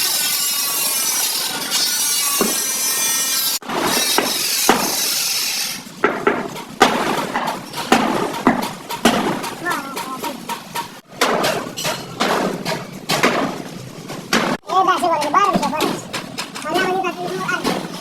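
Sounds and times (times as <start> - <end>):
angle grinder cutting metal: 0.0 - 6.0.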